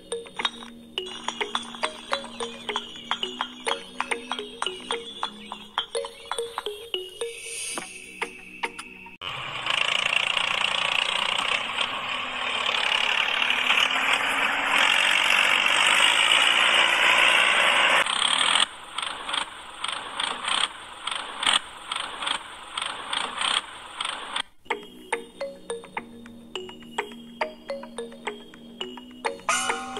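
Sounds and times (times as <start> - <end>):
irregular clicks and taps: 0.2 - 7.0
small electric motor whirring: 9.2 - 24.4.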